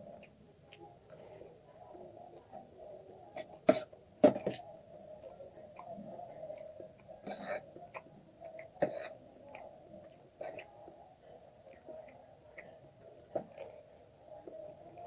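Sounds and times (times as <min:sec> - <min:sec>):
mouth eating sounds: 0:05.7 - 0:10.9.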